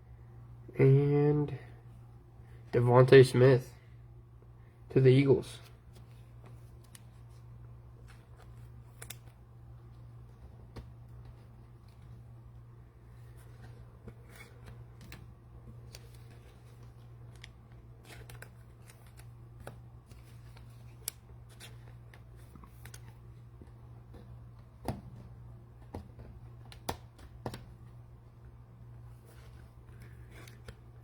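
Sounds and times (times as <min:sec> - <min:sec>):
cards and wrappers rustling: 0:13.0 - 0:24.1, 0:29.1 - 0:31.0.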